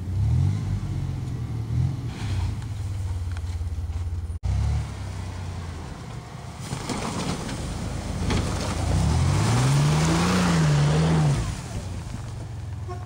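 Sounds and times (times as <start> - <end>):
engine revving under load: 0.0 - 2.8, 4.4 - 12.1.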